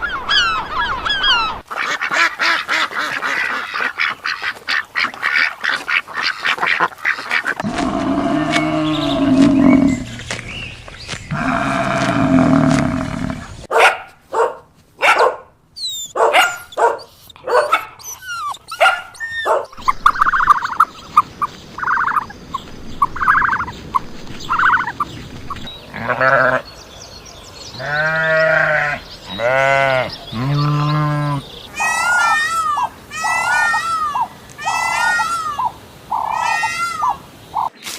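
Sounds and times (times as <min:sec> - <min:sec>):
farm animals calling: 0:00.0 - 0:13.7, 0:15.1 - 0:26.7, 0:27.7 - 0:37.7
goats or sheep bleating: 0:07.6 - 0:10.3, 0:11.3 - 0:13.5, 0:25.9 - 0:26.6, 0:27.8 - 0:31.4
high wavering animal calls: 0:07.6 - 0:13.7, 0:15.8 - 0:21.2.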